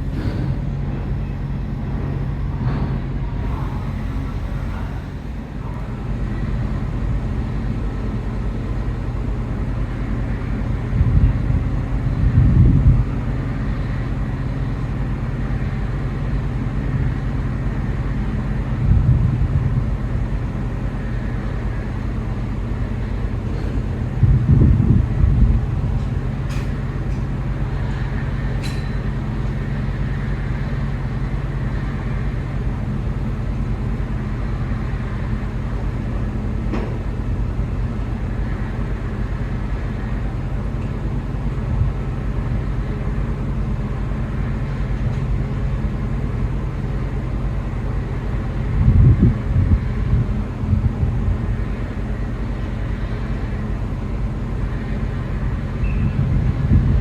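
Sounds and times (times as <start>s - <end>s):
low rumble: 0.0s - 7.2s
ship machinery drone: 0.0s - 57.0s.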